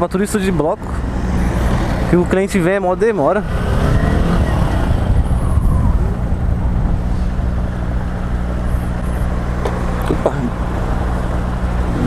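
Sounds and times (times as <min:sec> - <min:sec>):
wind rushing over microphone: 0:00.8 - 0:09.5.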